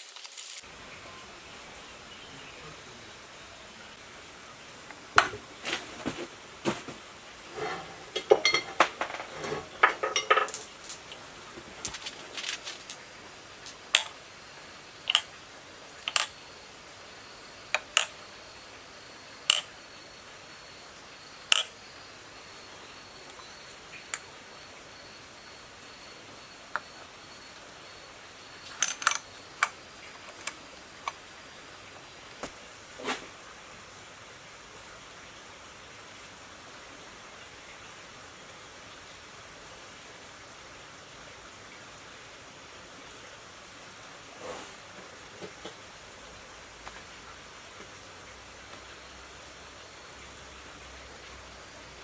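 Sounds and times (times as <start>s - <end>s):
metal tools clinking: 7.5s - 13.0s, 28.7s - 29.3s.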